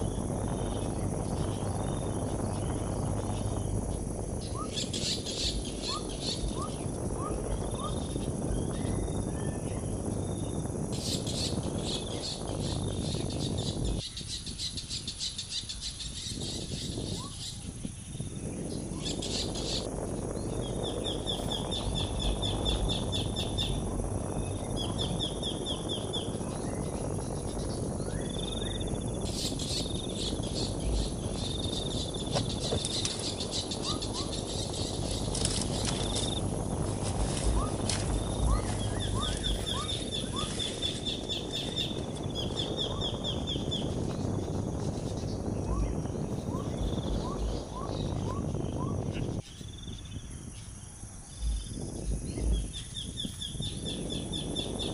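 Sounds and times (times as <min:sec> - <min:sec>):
faint rising chirps: 0:16.3 - 0:54.9
steady rustling: 0:26.3 - 0:42.4.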